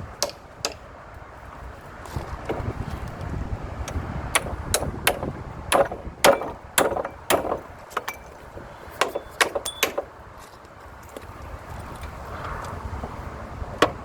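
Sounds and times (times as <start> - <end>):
hammer striking wood: 0.1 - 0.9, 3.9 - 8.4, 9.0 - 10.1
metallic ring: 5.8 - 8.4, 9.0 - 10.1.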